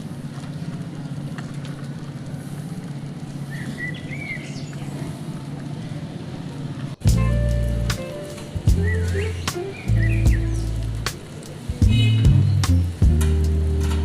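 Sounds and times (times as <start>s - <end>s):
bird chirping: 3.5s - 5.1s, 8.5s - 11.1s, 11.7s - 12.9s
vehicle engine chugging: 8.6s - 14.0s.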